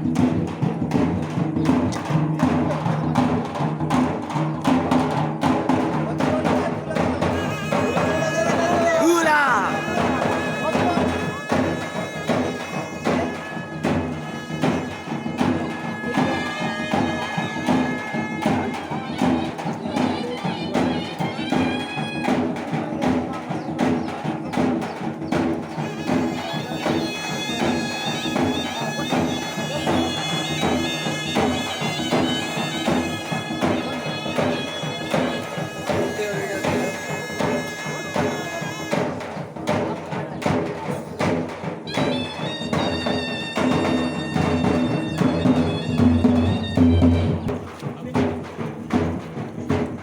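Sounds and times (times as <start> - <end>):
steady drum beat: 0.0 - 50.0
reedy wind instrument melody: 7.2 - 22.7, 25.8 - 39.4, 41.8 - 47.9.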